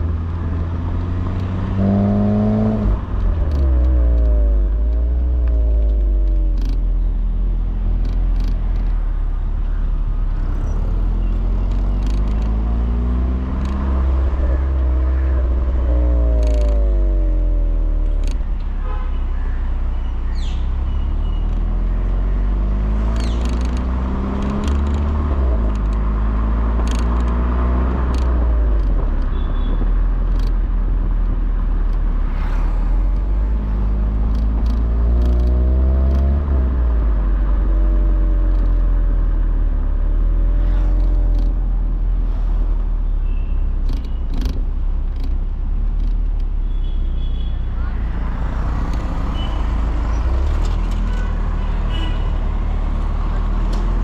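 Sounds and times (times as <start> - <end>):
car engine accelerating through exhaust: 0.0 - 18.7, 20.7 - 43.0, 47.9 - 54.0
sharp clicks: 11.6 - 12.6, 23.1 - 26.0, 26.8 - 27.4, 28.0 - 29.3, 30.3 - 30.6.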